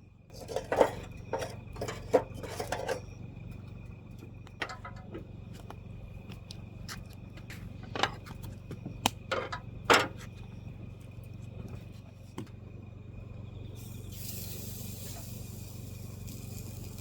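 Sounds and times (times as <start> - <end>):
steady low hum: 0.0 - 17.0
camp cookware clinking and scraping: 0.3 - 3.2, 4.6 - 5.3, 7.5 - 8.5, 9.3 - 10.4.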